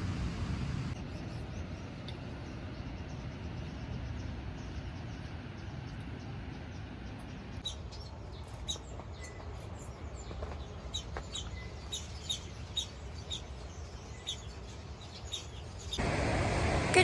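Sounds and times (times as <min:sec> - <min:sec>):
low background rumble: 0:00.0 - 0:08.4
birds chirping: 0:01.0 - 0:17.0.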